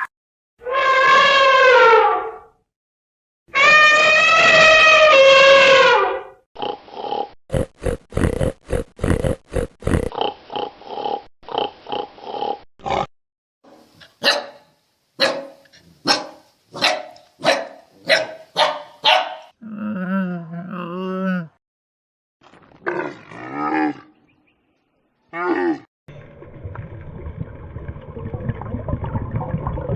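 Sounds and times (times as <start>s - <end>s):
dog barking: 14.2s - 19.6s.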